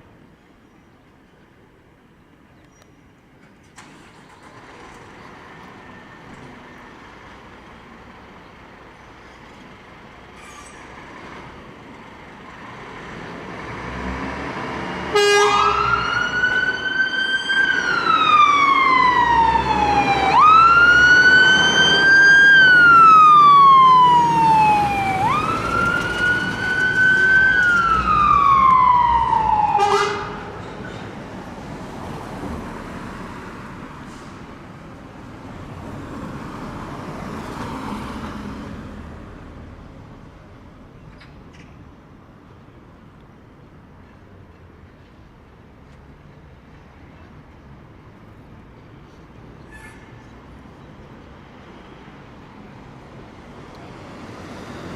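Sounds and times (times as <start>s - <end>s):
road traffic: 0.0s - 54.9s
emergency vehicle siren wailing: 15.1s - 30.6s.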